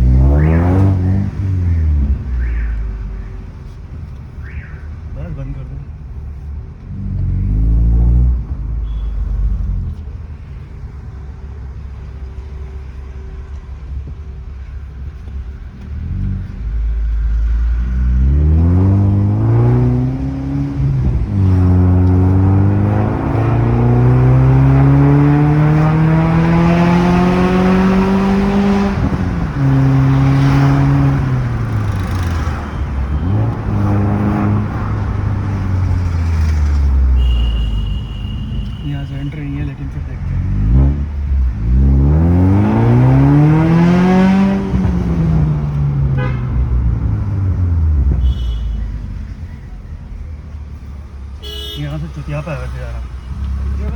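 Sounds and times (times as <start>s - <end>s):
car engine with loud exhaust: 0.0s - 53.9s.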